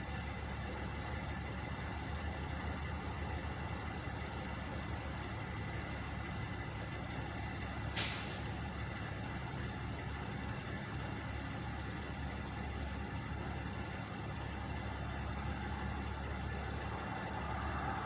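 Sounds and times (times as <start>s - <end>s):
truck engines idling: 0.0s - 18.0s
air brake hiss: 8.0s - 8.6s.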